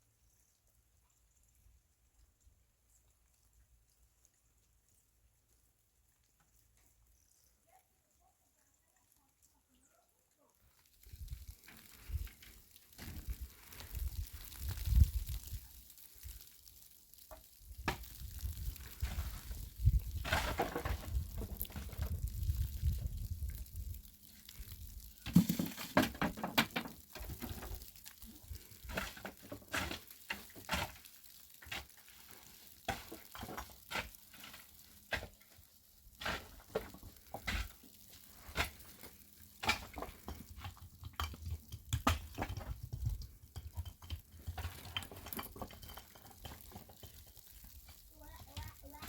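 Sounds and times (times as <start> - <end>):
objects clinking and knocking: 39.6 - 47.6.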